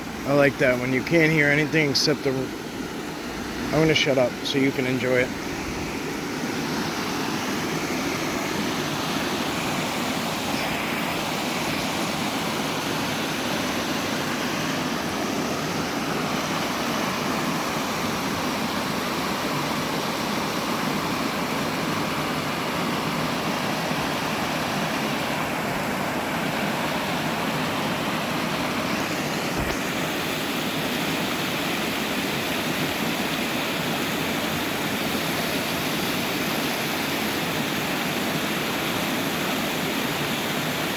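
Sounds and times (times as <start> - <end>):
waterfall and stream rushing: 0.0 - 40.9.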